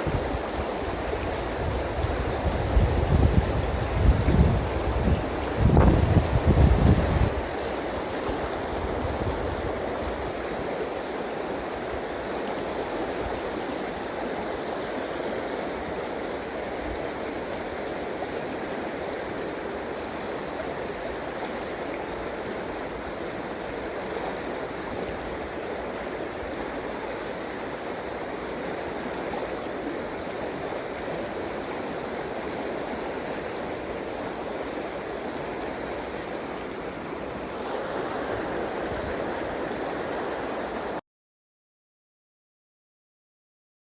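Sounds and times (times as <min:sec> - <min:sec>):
wind on microphone: 0:00.0 - 0:10.7
river water rushing: 0:00.0 - 0:41.0.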